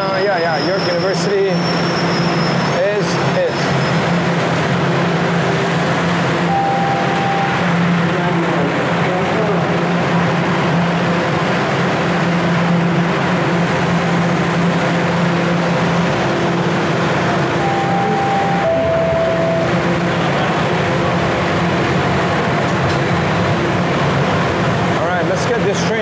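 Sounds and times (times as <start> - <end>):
subway platform noise: 0.0 - 26.0
held tones: 6.4 - 8.0, 17.5 - 20.0.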